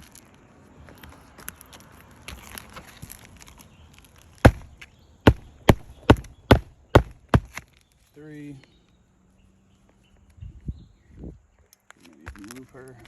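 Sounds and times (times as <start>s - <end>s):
faint handling noise: 0.0s - 5.0s
hammer striking a nail: 4.4s - 4.7s, 5.3s - 7.6s.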